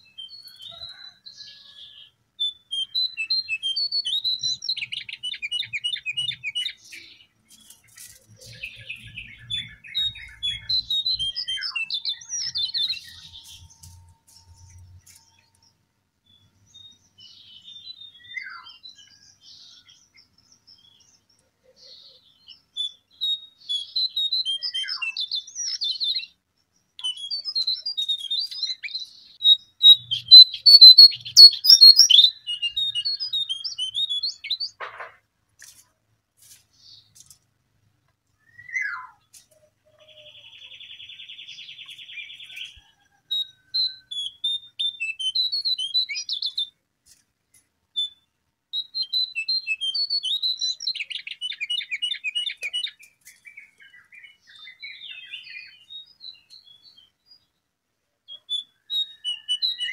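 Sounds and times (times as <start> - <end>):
rapid high bird chirps: 0.0 - 15.5, 16.4 - 34.8, 38.4 - 46.8, 48.0 - 57.2, 58.3 - 59.9
buzzy bird trill: 27.0 - 34.8.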